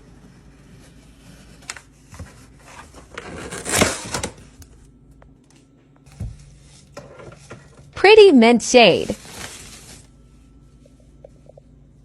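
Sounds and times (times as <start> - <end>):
packaging rustle: 9.2 - 10.1.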